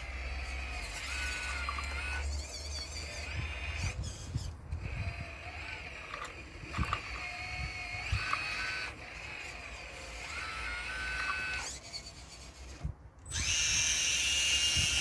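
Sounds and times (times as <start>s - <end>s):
electric motors and pump whining: 0.0s - 15.0s.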